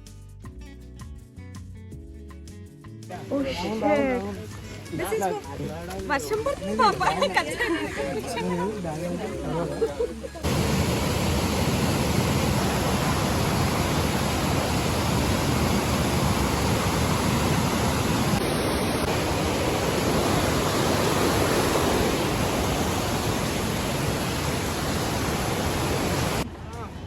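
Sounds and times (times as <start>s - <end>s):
steady rain: 10.4s - 26.5s.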